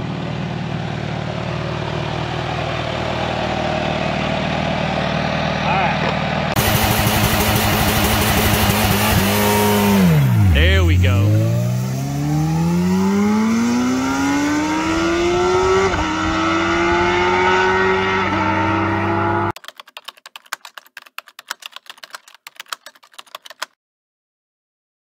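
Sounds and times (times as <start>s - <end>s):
motorcycle engine accelerating: 0.0s - 19.6s
rapid irregular clicking: 19.6s - 23.7s.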